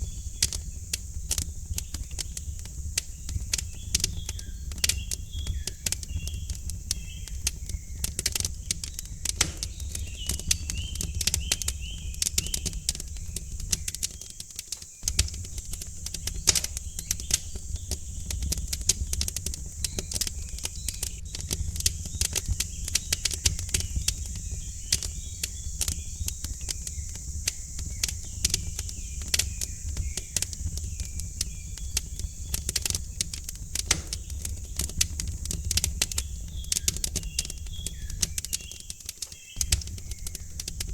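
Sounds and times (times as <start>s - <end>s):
faint birds chirping: 0.0s - 40.9s
wood fire crackling: 0.0s - 40.9s
steady low rumble: 39.6s - 40.9s.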